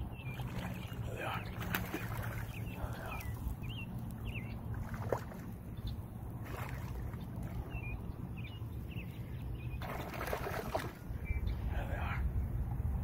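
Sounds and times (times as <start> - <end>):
steady low rumble: 0.0 - 13.0
bird chirps: 7.1 - 10.1, 11.2 - 11.7.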